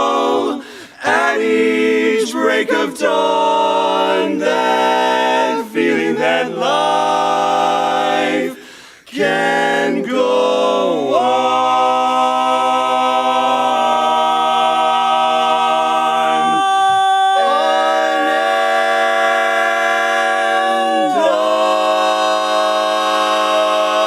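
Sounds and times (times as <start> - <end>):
male quartet singing a cappella: 0.0 - 24.0.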